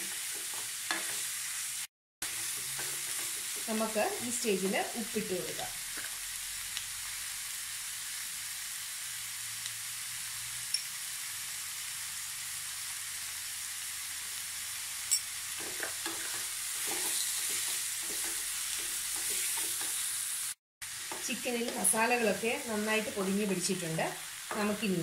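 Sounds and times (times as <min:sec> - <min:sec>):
chicken sizzling in a pan: 0:00.0 - 0:25.0
wooden spatula scraping a pan: 0:15.6 - 0:20.1.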